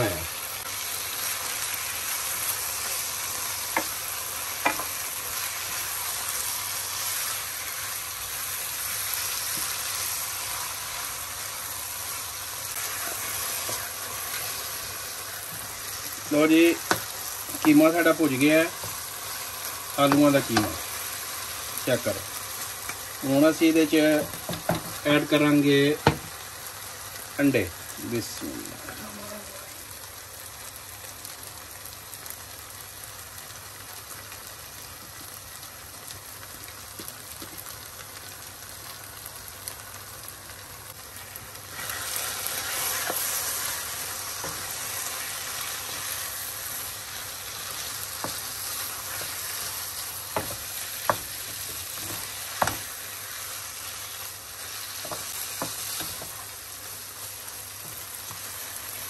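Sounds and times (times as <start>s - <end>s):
food sizzling in a wok: 0.0s - 59.0s
wooden spoon stirring: 41.7s - 56.5s.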